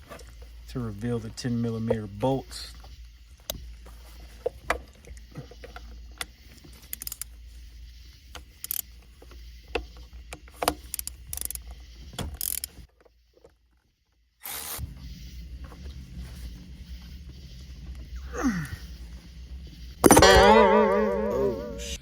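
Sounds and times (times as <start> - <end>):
steady low hum: 0.0 - 12.8, 14.8 - 22.0
ratchet clicking on bolts: 6.1 - 7.3, 8.6 - 8.9, 9.7 - 11.7, 12.3 - 12.9.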